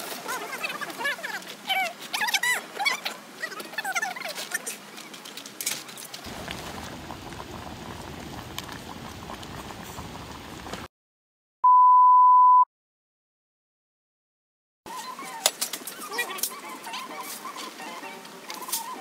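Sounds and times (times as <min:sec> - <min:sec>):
liquid bubbling: 0:06.3 - 0:10.9
loud steady beep: 0:11.6 - 0:12.7.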